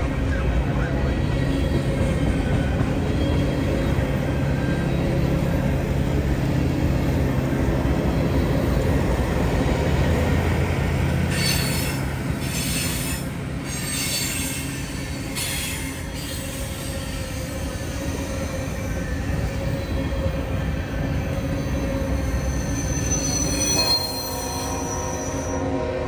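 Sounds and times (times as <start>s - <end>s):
freight train wheels clattering: 0.0s - 25.7s
wheels squealing: 11.0s - 25.6s.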